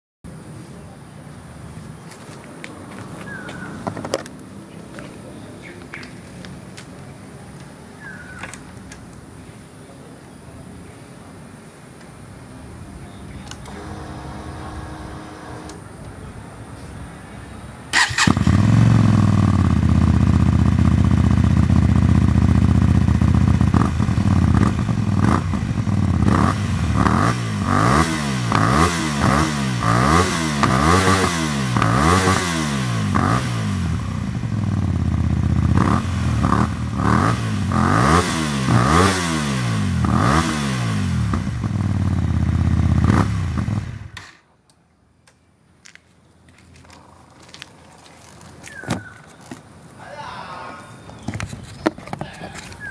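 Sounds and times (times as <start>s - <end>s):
motorcycle engine idling and revving: 13.4s - 15.9s, 17.9s - 44.4s.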